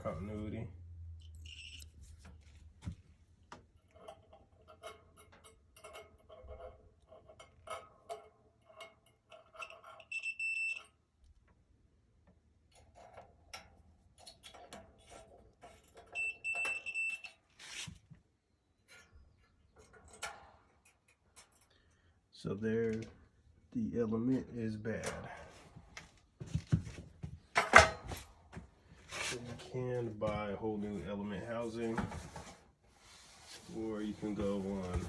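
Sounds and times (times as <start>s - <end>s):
multimeter continuity beep: 1.2s - 1.9s, 10.1s - 10.8s, 16.2s - 17.3s.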